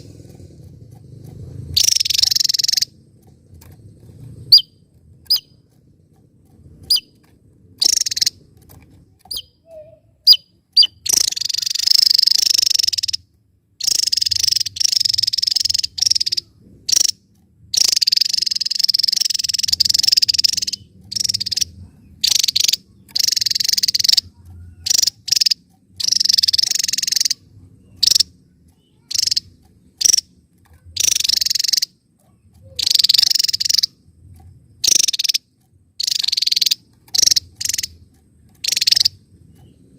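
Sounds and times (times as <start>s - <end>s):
bird chirps and buzzy trills: 0.0s - 39.9s.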